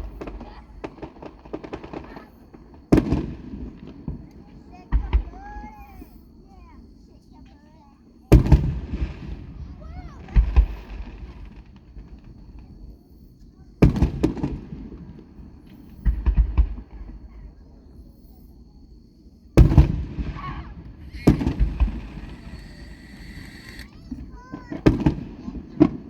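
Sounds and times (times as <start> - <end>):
fireworks booming: 21.0 - 24.2.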